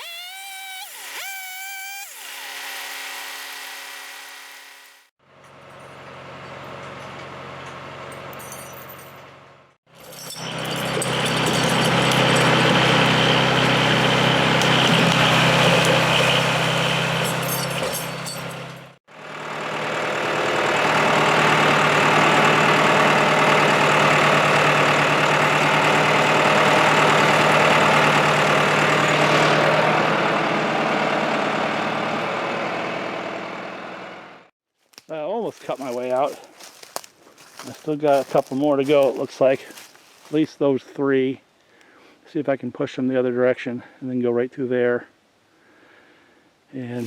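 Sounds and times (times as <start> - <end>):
engine running steadily: 10.3 - 34.5.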